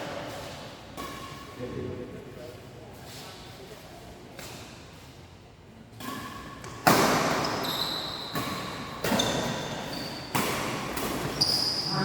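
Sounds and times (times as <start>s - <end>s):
racket striking shuttlecock: 6.0s - 7.6s, 8.2s - 11.4s
shoes squeaking on court floor: 6.0s - 12.0s.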